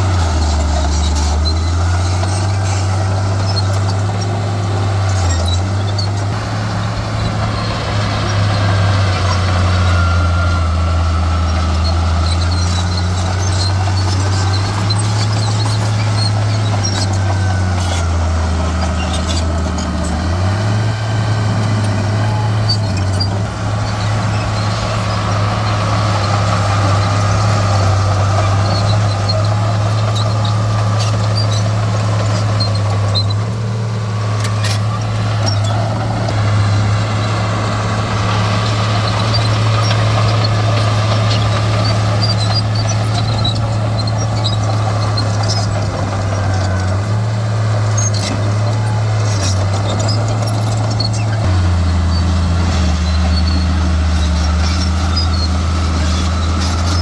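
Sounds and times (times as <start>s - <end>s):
heavy diesel machinery running: 0.0s - 57.0s
high-pitched ticks and squeaks: 38.6s - 46.0s, 48.0s - 51.4s.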